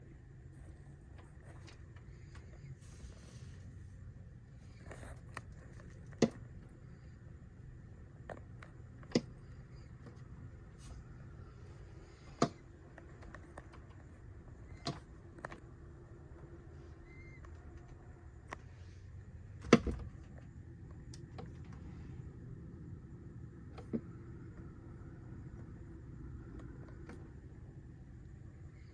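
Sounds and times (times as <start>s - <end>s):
bird knocking against house: 19.6s - 20.1s.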